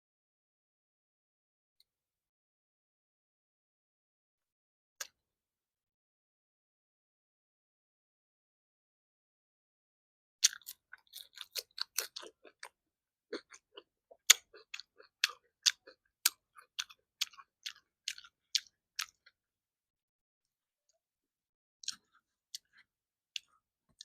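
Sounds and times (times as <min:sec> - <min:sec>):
close chewing with crunches: 0:10.4 - 0:19.4, 0:21.8 - 0:24.0.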